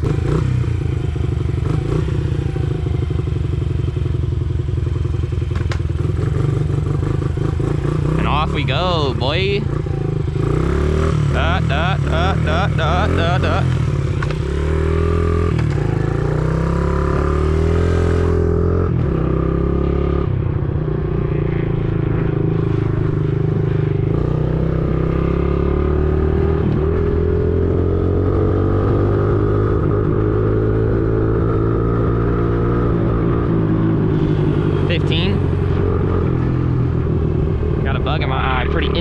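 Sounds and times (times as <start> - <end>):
dirt bike engine revving: 0.0 - 3.3, 6.0 - 20.3, 21.0 - 39.0.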